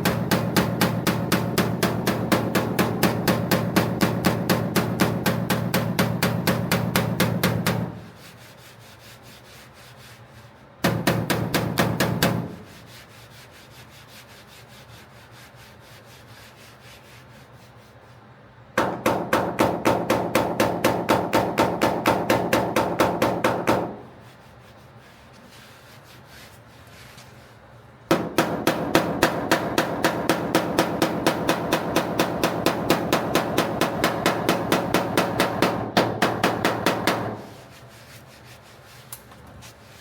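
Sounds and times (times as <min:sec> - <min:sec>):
hammer tapping on steel panel: 0:00.0 - 0:08.0, 0:10.8 - 0:12.6, 0:18.8 - 0:24.0, 0:28.1 - 0:37.4.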